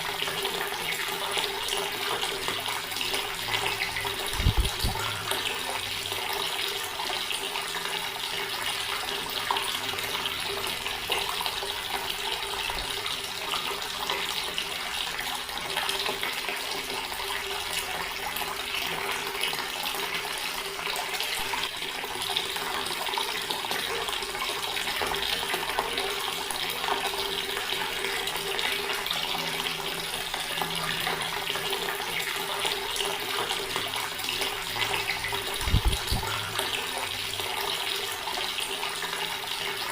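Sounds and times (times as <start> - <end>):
tap water splashing into stone basin: 0.0 - 13.3.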